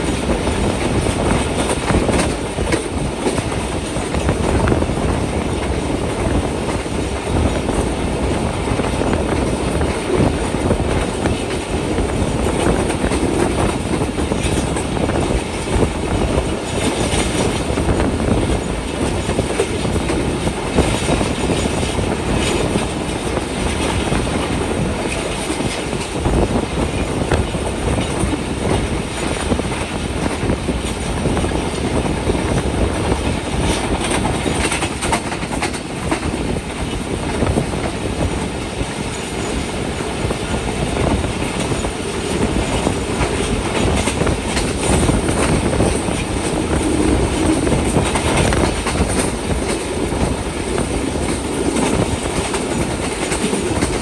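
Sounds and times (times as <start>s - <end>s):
train wheels rumbling and rattling: 0.0s - 54.0s.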